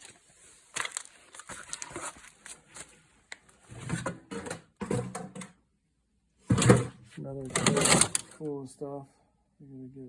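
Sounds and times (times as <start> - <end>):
scrap items clicking and knocking: 3.7 - 5.5, 6.5 - 8.4.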